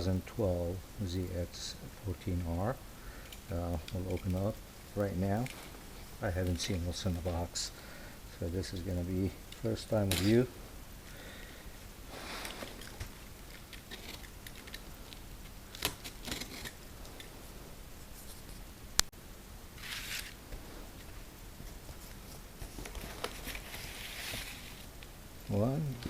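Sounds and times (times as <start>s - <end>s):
cardboard packaging rustling: 12.1s - 17.4s, 19.8s - 25.0s.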